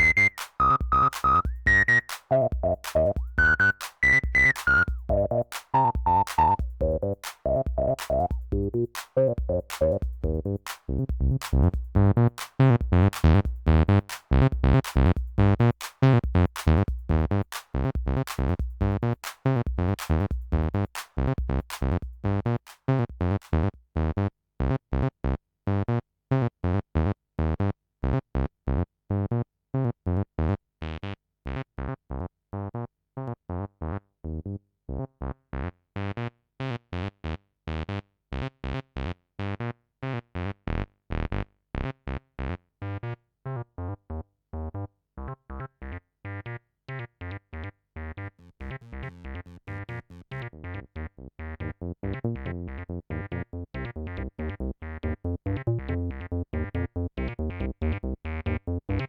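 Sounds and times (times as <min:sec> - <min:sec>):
staccato synth bass lines: 0:00.0 - 0:24.1, 0:47.3 - 0:59.0.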